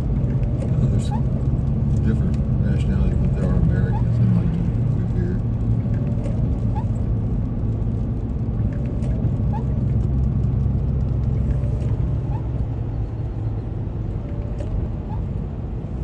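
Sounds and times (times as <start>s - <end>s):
engine and road noise: 0.0s - 16.0s.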